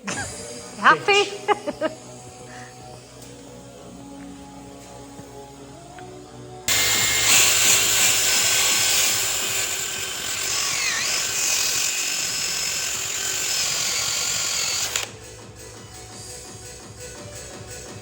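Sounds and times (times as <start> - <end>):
power tool running: 6.7 - 15.4.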